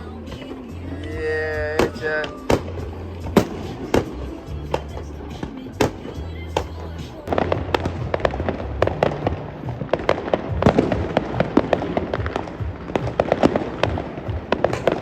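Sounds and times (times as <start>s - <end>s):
fireworks cracking and popping: 0.0s - 15.0s.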